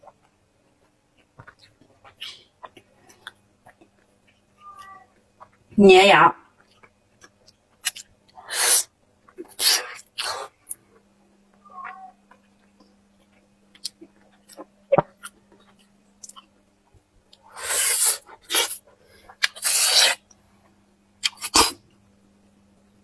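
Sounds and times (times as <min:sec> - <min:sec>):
mouth clicks and smacks: 0:00.0 - 0:04.4, 0:06.6 - 0:10.8, 0:12.3 - 0:16.5, 0:17.3 - 0:20.4.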